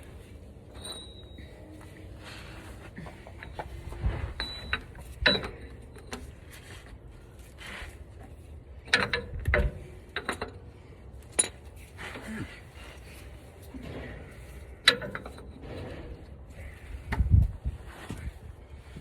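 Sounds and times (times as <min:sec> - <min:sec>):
hand tools clicking and clanking: 0:03.0 - 0:06.8, 0:08.8 - 0:17.3.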